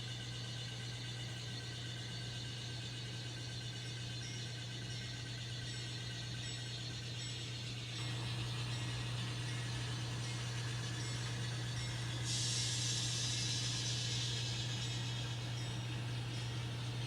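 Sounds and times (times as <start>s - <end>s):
model locomotive engine drone: 0.0s - 0.2s, 2.9s - 17.0s
steady hiss: 8.0s - 17.0s.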